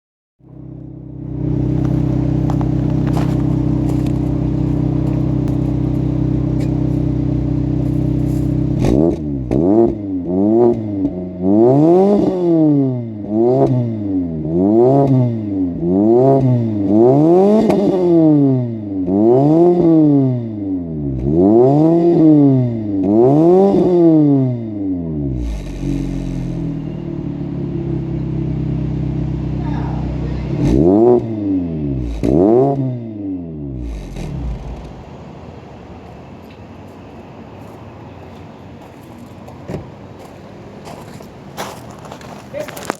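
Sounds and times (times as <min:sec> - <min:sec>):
car engine idling and revving: 0:00.4 - 0:37.8.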